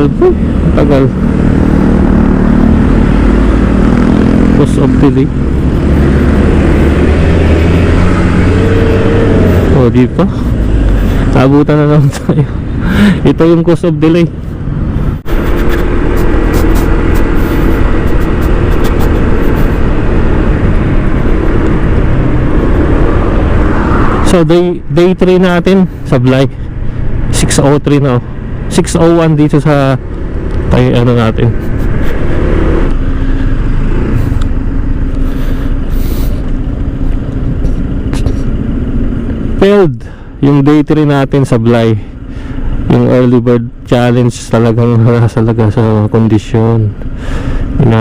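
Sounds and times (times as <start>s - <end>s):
scooter engine humming: 0.0s - 13.2s, 14.3s - 24.3s, 30.0s - 39.6s
scooter engine running: 15.2s - 22.7s.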